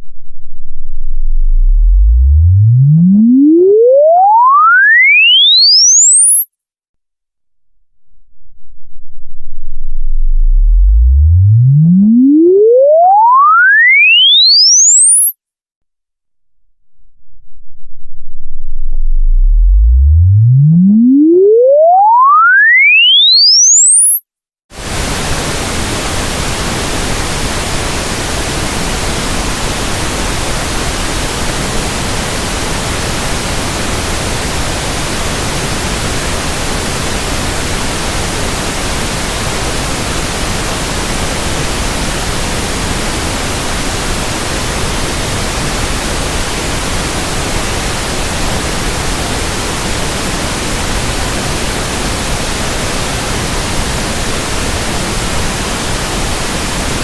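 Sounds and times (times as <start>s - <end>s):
steady pink noise: 24.3s - 57.0s.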